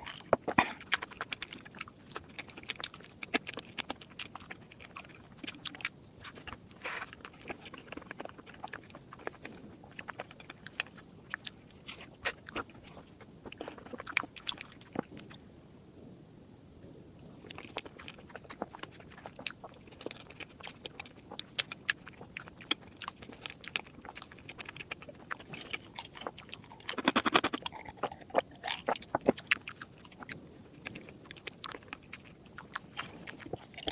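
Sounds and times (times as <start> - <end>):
chewing and crunching: 0.0 - 15.5, 17.2 - 33.9.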